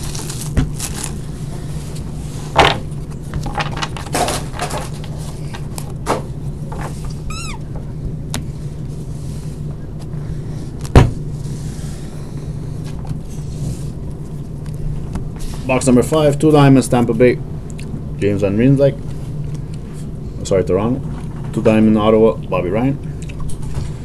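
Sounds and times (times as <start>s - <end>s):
wrappers crinkling: 0.0s - 2.0s
steady low hum: 0.0s - 24.0s
brief squeak: 7.3s - 7.6s.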